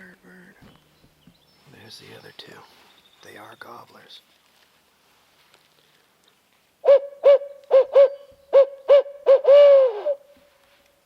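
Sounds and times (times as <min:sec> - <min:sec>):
owl hooting: 0:06.8 - 0:10.4.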